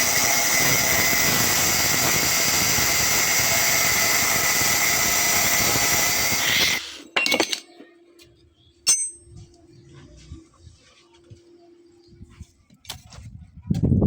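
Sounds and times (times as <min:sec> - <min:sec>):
angle grinder cutting steel: 0:00.0 - 0:06.9.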